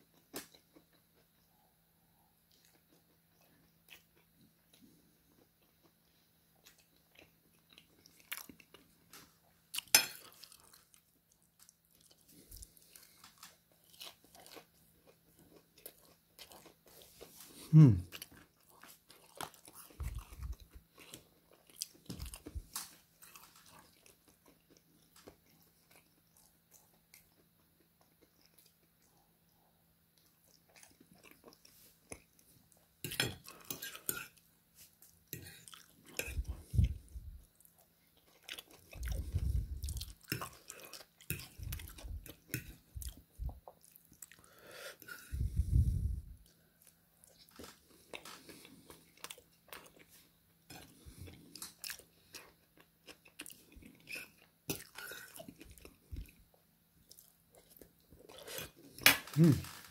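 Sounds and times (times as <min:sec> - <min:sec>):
person chewing and crunching: 0:02.2 - 0:29.6, 0:30.2 - 0:59.9
person humming short falling hum: 0:17.7 - 0:18.0, 0:59.4 - 0:59.6.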